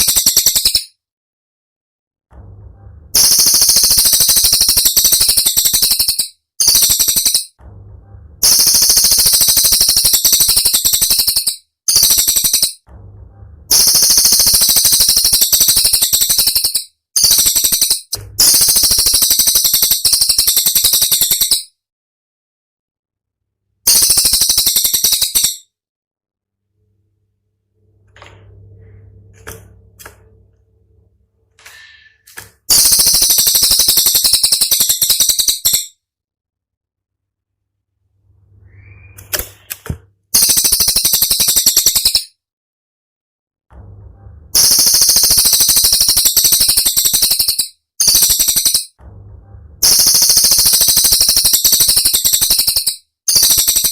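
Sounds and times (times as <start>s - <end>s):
bird rapid rattling burst: 3.2s - 7.5s, 8.4s - 12.8s, 13.7s - 21.6s, 23.9s - 25.6s, 32.7s - 35.9s, 40.4s - 42.3s, 44.6s - 48.9s, 49.8s - 53.9s.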